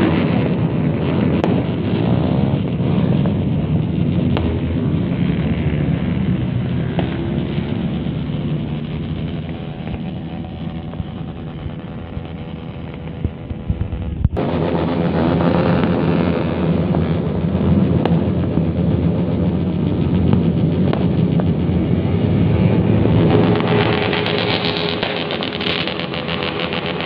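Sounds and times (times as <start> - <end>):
motorcycles revving together: 22.1 - 27.0.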